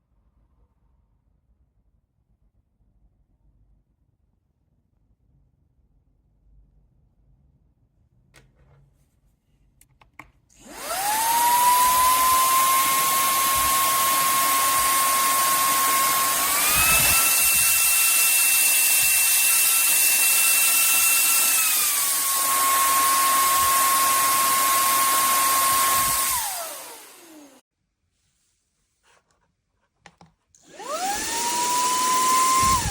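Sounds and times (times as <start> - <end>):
handheld vacuum cleaner whining: 10.5 - 27.6, 30.6 - 32.9.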